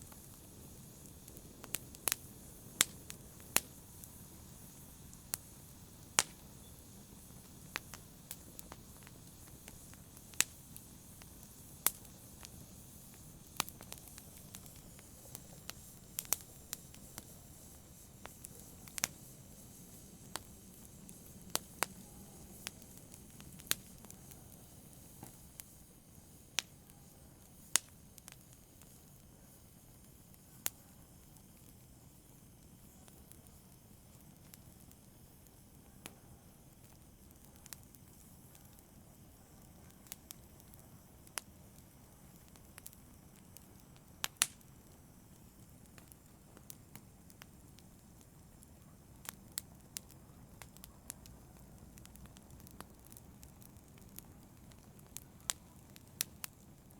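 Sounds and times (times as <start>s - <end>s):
wood fire popping and snapping: 0.0s - 29.3s, 30.0s - 56.9s
low rumble of burning: 0.0s - 56.9s.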